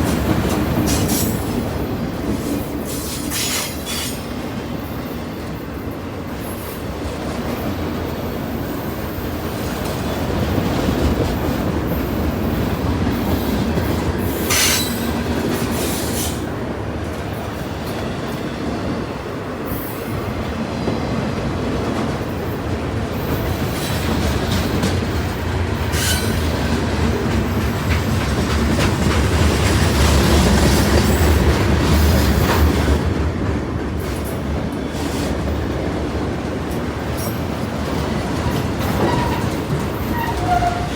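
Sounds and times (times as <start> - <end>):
train cars rumbling past: 0.0 - 40.9
wheel squeals on rail: 2.4 - 4.3, 14.2 - 16.5, 25.8 - 26.6, 38.5 - 40.9
wheels clacking over rail joints: 21.6 - 40.9.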